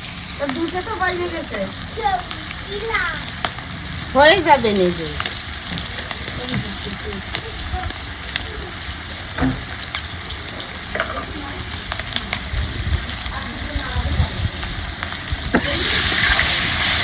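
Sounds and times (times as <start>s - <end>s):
potatoes sizzling in hot oil: 0.0s - 17.0s.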